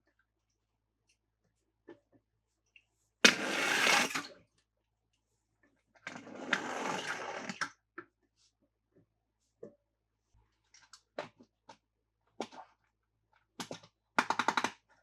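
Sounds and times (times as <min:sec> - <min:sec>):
toy motor whirring: 0:03.3 - 0:04.3.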